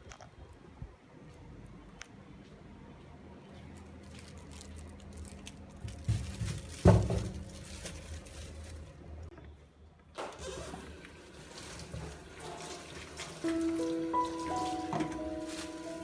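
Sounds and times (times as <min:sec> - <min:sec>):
plastic bag crinkling: 0:03.8 - 0:09.1, 0:11.2 - 0:16.0.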